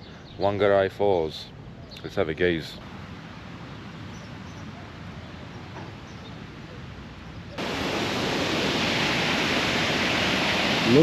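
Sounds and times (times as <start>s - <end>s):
faint outdoor background: 0.0s - 11.0s
waterfall rushing: 7.6s - 11.0s.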